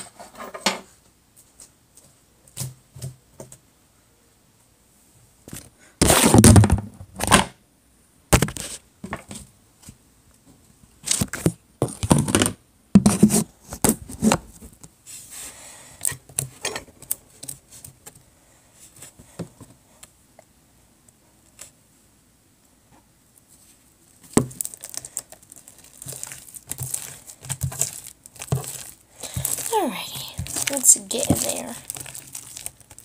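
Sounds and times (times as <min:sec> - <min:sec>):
spoon scraping plastic container: 0:26.0 - 0:32.3.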